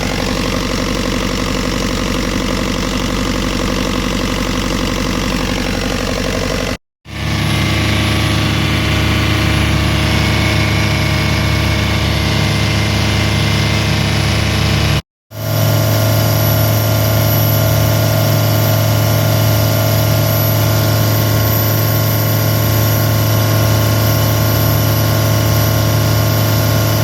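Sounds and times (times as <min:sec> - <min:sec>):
marine diesel engine running: 0:00.0 - 0:27.0.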